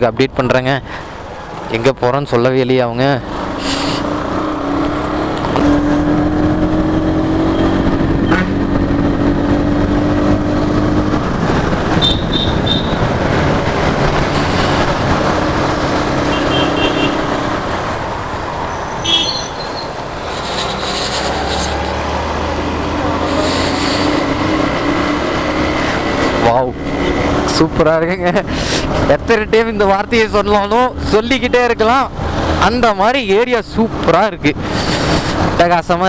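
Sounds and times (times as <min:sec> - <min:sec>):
motorcycle engine running: 0:04.6 - 0:26.0
wind on microphone: 0:05.4 - 0:16.2
short high pips: 0:19.0 - 0:22.0.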